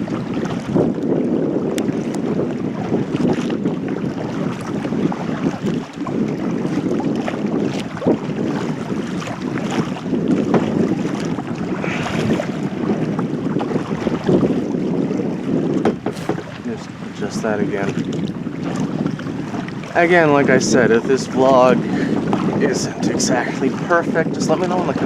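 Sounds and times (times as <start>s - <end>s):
paddle splashing water: 0.0s - 25.0s
wind buffeting microphone: 0.0s - 25.0s.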